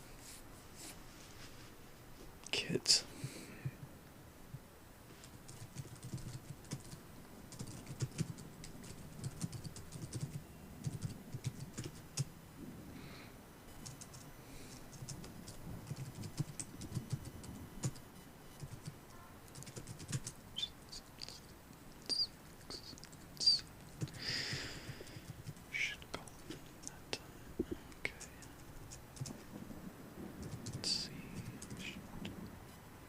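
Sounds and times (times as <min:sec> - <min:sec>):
city ambience: 0:00.0 - 0:33.0
typing on computer keyboard: 0:05.2 - 0:12.3, 0:13.8 - 0:18.0, 0:18.6 - 0:20.4, 0:23.9 - 0:25.6, 0:28.1 - 0:29.4, 0:30.4 - 0:31.8.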